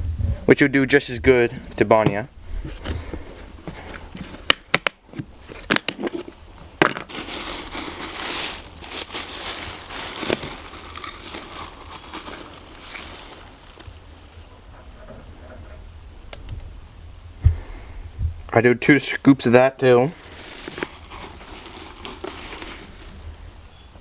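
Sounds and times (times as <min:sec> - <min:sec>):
pellets pouring and rustling: 0:06.9 - 0:14.5, 0:20.0 - 0:23.6.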